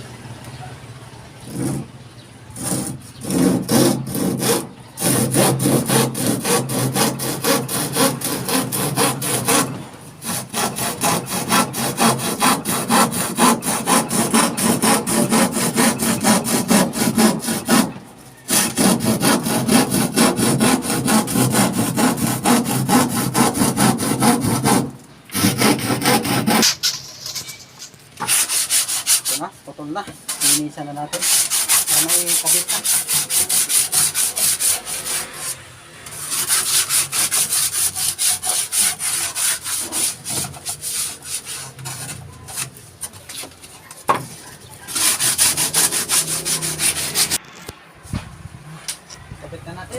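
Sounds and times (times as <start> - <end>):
hand saw cutting wood: 1.5 - 1.9, 2.6 - 27.0, 28.2 - 29.4, 30.3 - 47.4.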